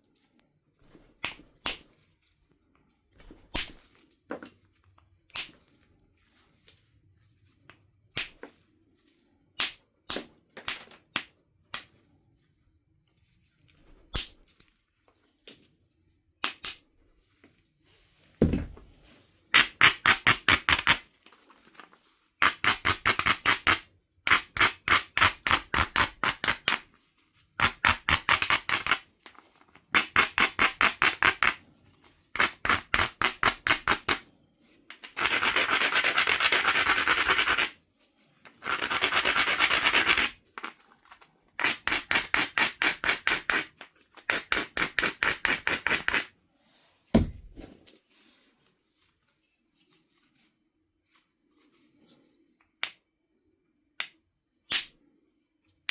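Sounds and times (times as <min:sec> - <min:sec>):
heavy stone strike: 0:18.4 - 0:18.8, 0:47.2 - 0:47.8.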